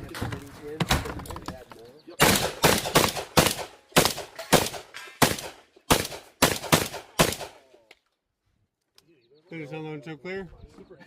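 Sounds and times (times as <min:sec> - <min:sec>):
shotgun shots: 0:02.2 - 0:07.7.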